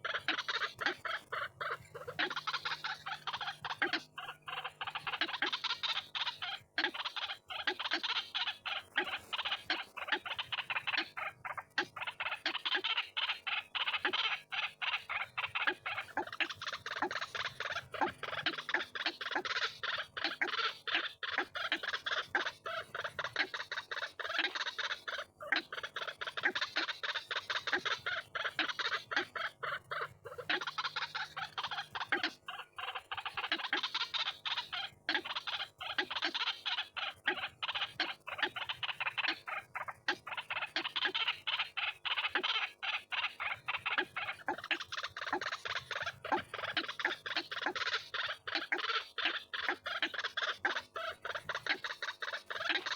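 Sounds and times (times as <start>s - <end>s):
waterhen calling: 0.0s - 52.9s.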